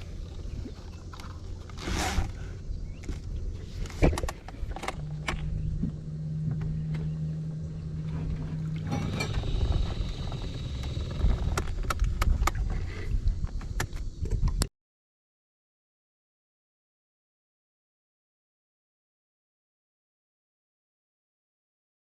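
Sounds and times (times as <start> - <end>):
low hum: 0.0 - 14.7
steady low rumble: 0.0 - 14.7.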